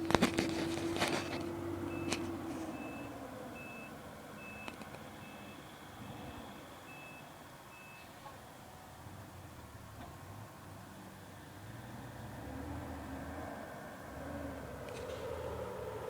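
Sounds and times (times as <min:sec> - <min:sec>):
faint engine hum: 0:00.0 - 0:16.0
truck reversing alarm beeping: 0:01.1 - 0:09.0.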